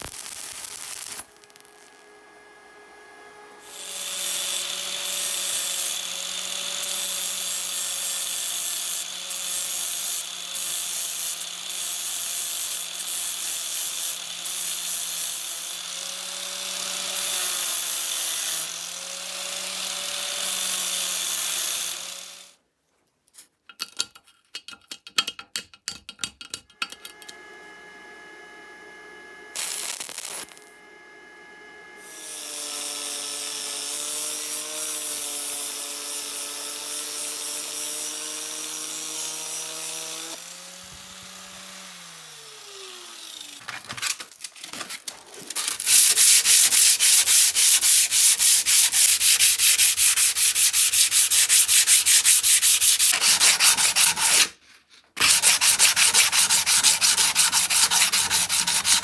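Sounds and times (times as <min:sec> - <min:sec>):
electric tool motor running: 0:00.0 - 0:22.5, 0:26.9 - 0:43.8, 0:45.5 - 0:54.5, 0:55.2 - 0:59.0
sanding strokes: 0:45.5 - 0:54.6, 0:55.2 - 0:59.0.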